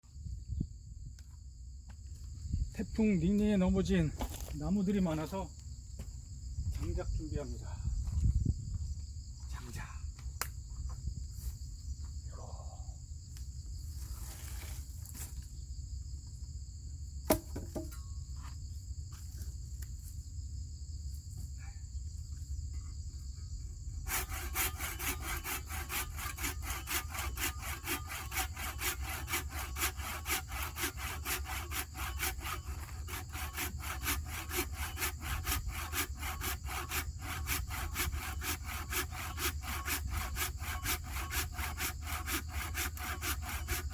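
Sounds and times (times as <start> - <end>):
insects chirring: 0.1 - 43.9
hand saw cutting wood: 24.0 - 43.9.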